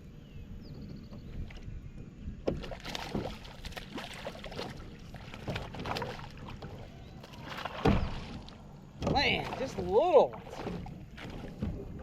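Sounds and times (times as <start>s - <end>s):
low rumble of wind or water: 0.0s - 12.0s.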